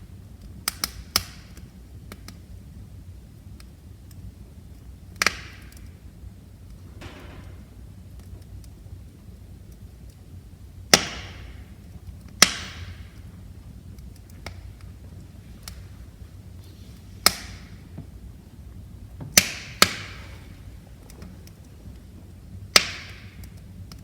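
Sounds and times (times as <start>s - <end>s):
low rumble of flames: 0.0s - 24.0s
wood fire crackling: 0.0s - 24.0s
loud sharp pops: 10.9s - 11.6s, 12.4s - 13.2s.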